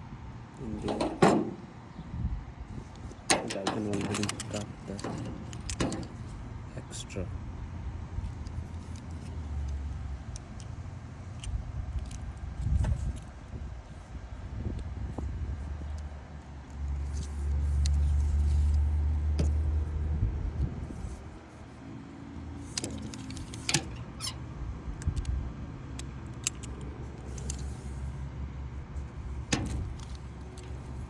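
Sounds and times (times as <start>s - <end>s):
wiper blade clicking and rattling: 0.6s - 1.8s, 2.9s - 6.4s, 17.0s - 19.9s, 22.6s - 24.4s, 29.2s - 31.0s.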